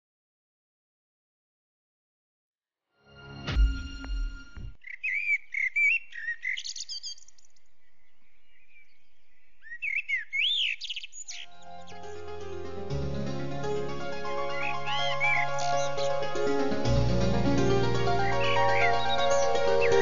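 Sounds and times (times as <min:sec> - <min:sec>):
background music: 0:03.0 - 0:04.8, 0:11.3 - 0:20.0
small bird chirping: 0:04.8 - 0:12.2, 0:14.4 - 0:16.3, 0:18.2 - 0:20.0.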